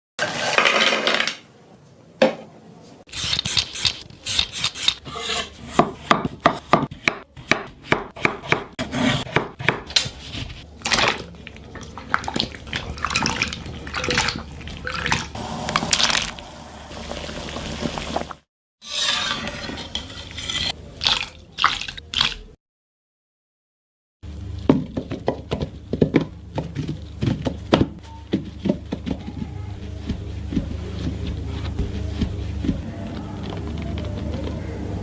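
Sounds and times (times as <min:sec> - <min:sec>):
knife scraping board: 0:03.1 - 0:07.0, 0:08.4 - 0:10.6, 0:18.8 - 0:20.8.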